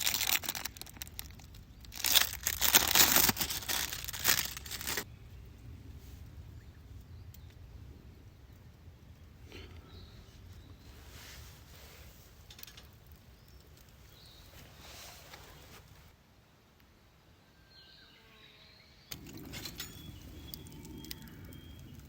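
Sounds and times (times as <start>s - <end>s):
steady low rumble: 0.6s - 14.5s, 19.1s - 22.0s
soft rustling: 10.8s - 16.1s
faint bird chirps: 17.4s - 22.0s.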